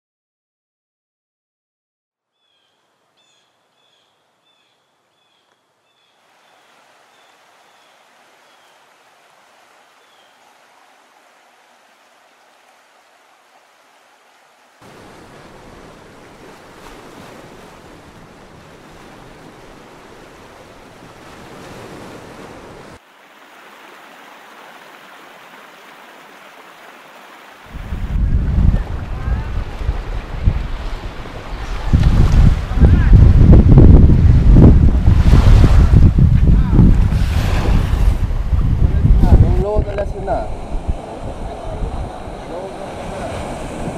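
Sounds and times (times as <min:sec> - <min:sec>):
small waves washing onto sand: 0:06.2 - 0:43.9
low wind rumble on microphone: 0:27.7 - 0:43.9.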